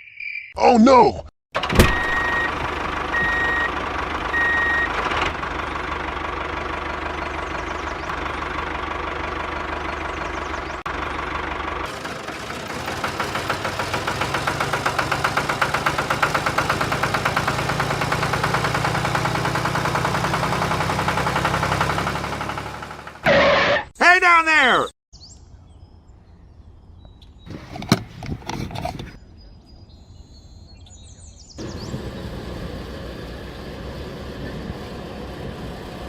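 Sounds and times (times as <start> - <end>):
tractor engine chugging: 1.6 - 23.8, 31.6 - 36.0
reversing beeper: 1.8 - 5.0.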